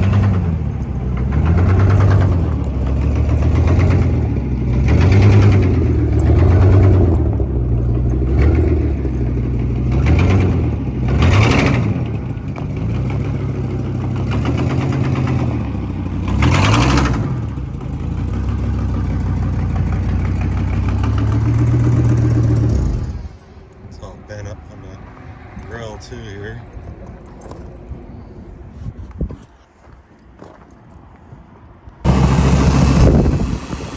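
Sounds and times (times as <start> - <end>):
truck engine revving: 0.0 - 23.4, 32.0 - 33.9.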